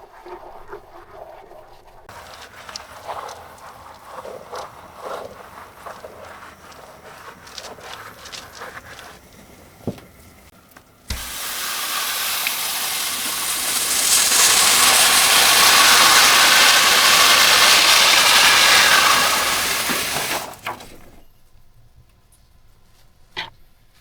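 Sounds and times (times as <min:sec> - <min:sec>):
spraying hiss: 0:11.1 - 0:20.7.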